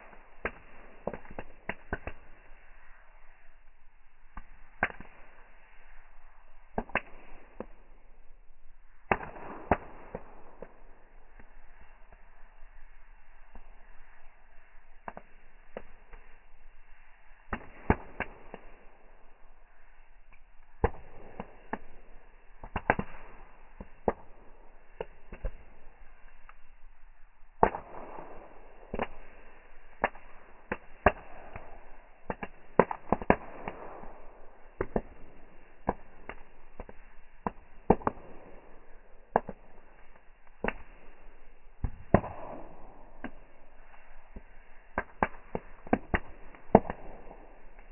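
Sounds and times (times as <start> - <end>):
bonfire crackling and popping: 0.0 - 47.9.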